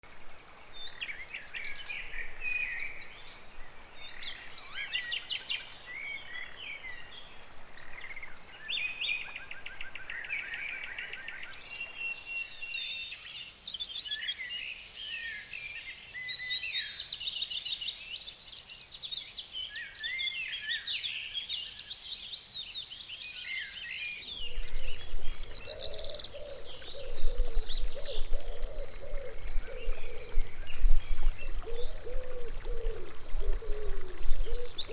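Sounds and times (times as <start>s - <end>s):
songbirds singing: 0.1s - 34.9s
low rumble: 24.4s - 34.8s.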